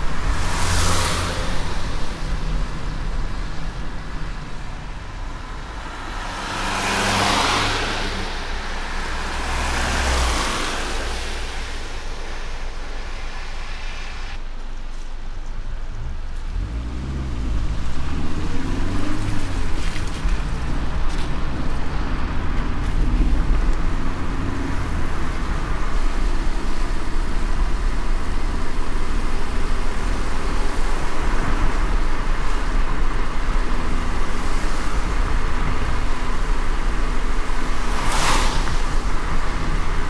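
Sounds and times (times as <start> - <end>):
car road and engine rumble: 0.0 - 40.0
rain hiss on wet road: 0.0 - 40.0.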